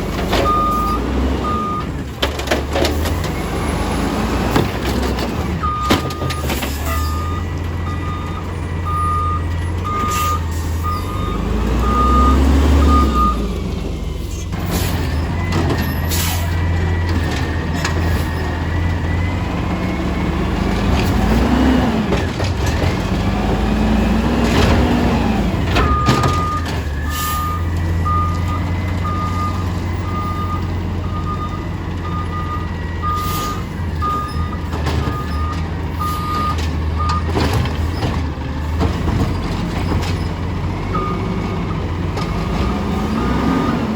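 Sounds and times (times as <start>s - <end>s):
garbage truck engine: 0.0s - 43.9s
backup alarm beeping: 5.6s - 13.4s, 25.8s - 37.3s.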